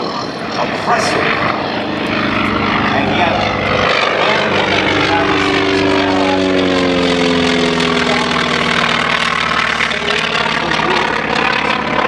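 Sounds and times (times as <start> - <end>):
propeller plane flying past: 0.0 - 12.0.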